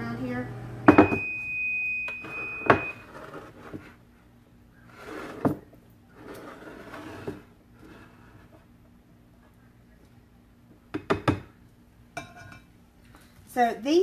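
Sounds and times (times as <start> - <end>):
kitchen knocks and clunks: 0.9 - 1.3, 10.9 - 11.6
high electronic beep: 0.9 - 3.0.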